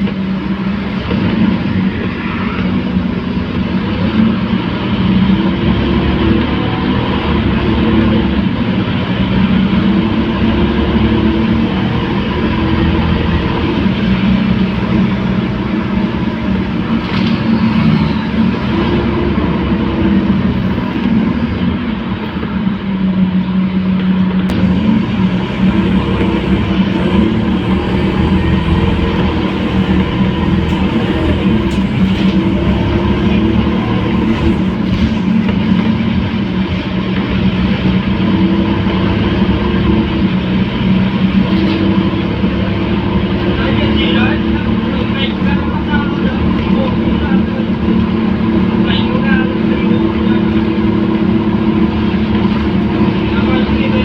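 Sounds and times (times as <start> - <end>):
road noise: 0.0 - 54.0
bus diesel engine running: 3.2 - 22.8, 23.6 - 54.0.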